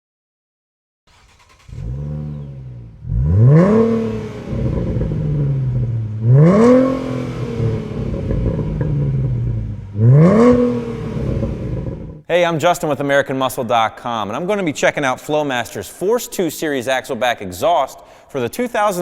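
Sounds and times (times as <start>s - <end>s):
car engine starting and idling: 1.1s - 12.2s
engine revving: 1.1s - 12.2s.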